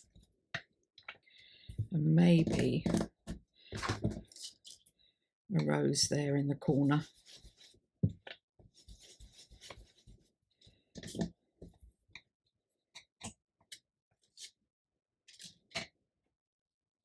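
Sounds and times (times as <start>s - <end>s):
brush rubbing on paper: 6.8s - 7.8s, 8.8s - 10.3s.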